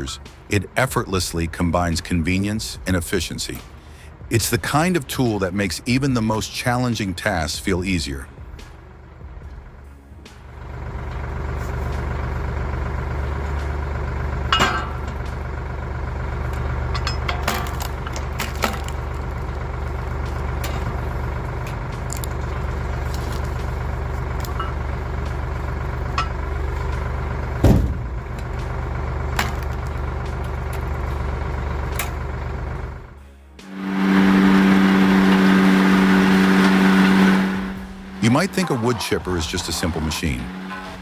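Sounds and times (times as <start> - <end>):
firewood processor engine running: 10.4 - 41.0
wood being cut and split: 17.6 - 25.2, 33.6 - 41.0
heavy thump: 27.6 - 28.2.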